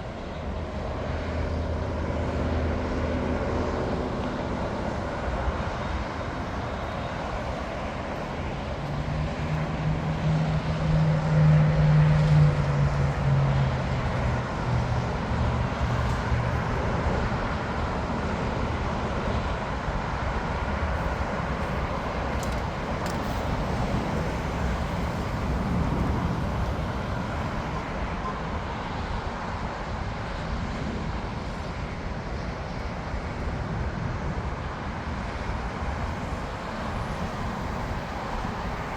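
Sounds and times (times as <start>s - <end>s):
traffic rumble: 0.0s - 38.9s.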